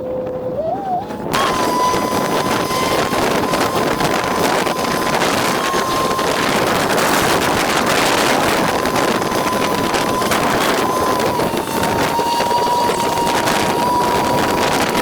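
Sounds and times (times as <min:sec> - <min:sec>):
boat motor running: 0:00.0 - 0:15.0
thin steady whine: 0:00.0 - 0:15.0
wind buffeting microphone: 0:00.0 - 0:15.0
water rushing: 0:01.0 - 0:15.0.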